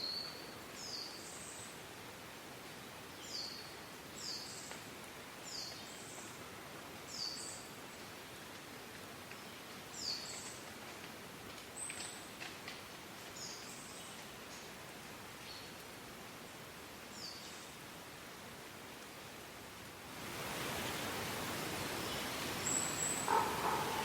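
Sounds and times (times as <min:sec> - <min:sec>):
steady outdoor hiss: 0:00.0 - 0:24.0
faint clicks: 0:08.5 - 0:14.8
songbird calling: 0:22.0 - 0:24.0.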